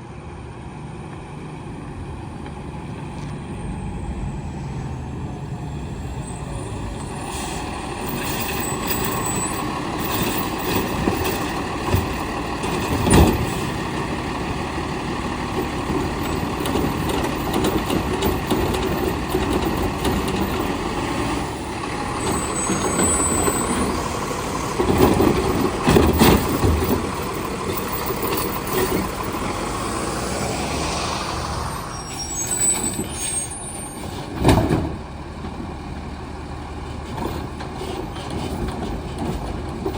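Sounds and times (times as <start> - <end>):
garbage truck engine running: 1.6 - 39.9
air brake hiss: 7.2 - 7.8.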